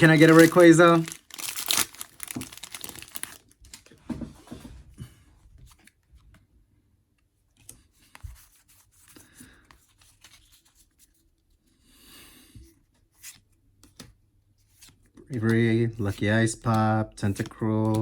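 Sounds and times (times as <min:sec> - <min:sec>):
cards rustling: 0:00.0 - 0:03.9, 0:14.7 - 0:18.0
foil wrapper tearing and crinkling: 0:00.0 - 0:03.9.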